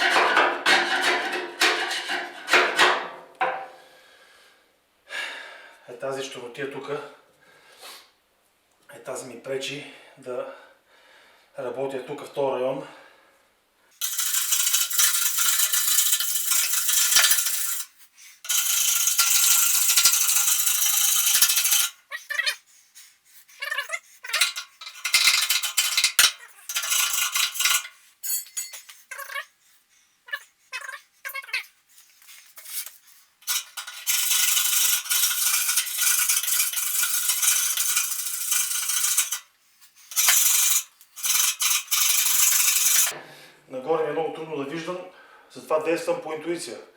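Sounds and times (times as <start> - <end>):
tool scraping steel walls: 0.0 - 3.7, 14.0 - 22.4, 23.6 - 29.2, 32.4 - 43.2.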